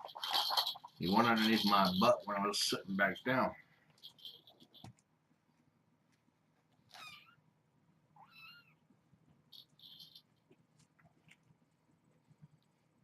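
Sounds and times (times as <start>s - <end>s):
kitten meowing: 6.9s - 7.4s, 8.2s - 8.8s
soft rustle: 8.6s - 13.0s.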